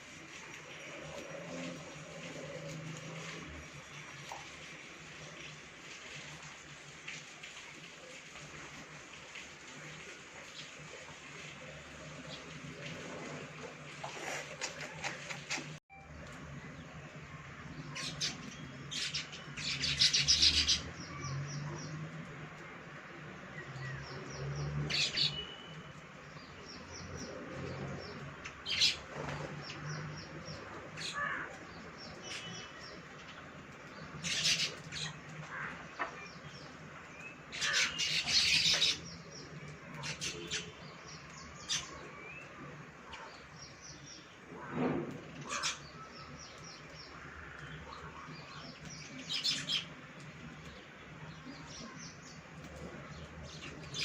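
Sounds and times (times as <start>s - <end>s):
birds chirping and chattering: 16.7s - 54.0s.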